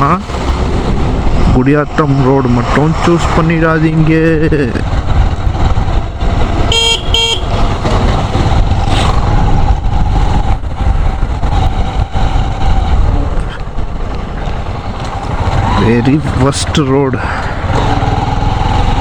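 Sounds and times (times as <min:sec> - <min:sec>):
motorcycle engine rumble: 0:00.0 - 0:19.0
vehicle horn toots: 0:06.6 - 0:07.6.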